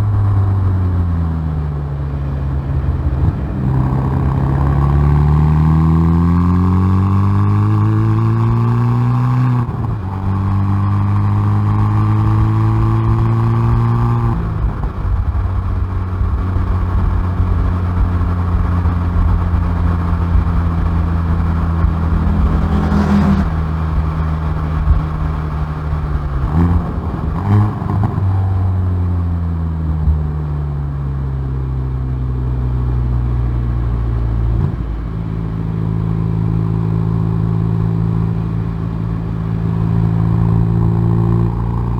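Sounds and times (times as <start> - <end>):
car exhaust accelerating: 0.0 - 41.9
engine revving blips: 19.8 - 25.2.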